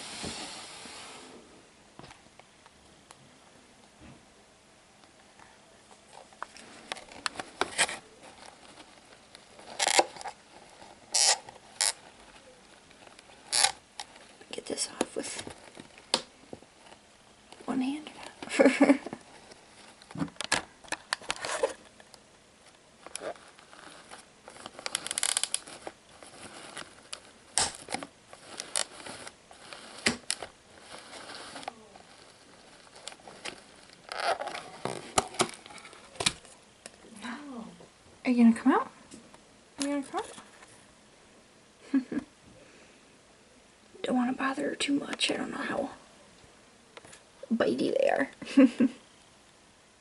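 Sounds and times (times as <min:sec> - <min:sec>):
packaging clicks and scrapes: 0:06.1 - 0:22.0, 0:22.6 - 0:36.6
packaging rustling: 0:06.1 - 0:36.6.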